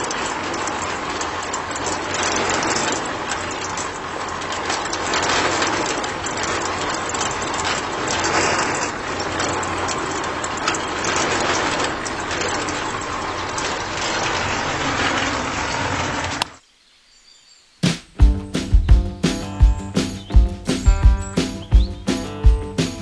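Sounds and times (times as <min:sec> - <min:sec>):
small concrete mixer running: 0:00.0 - 0:16.6.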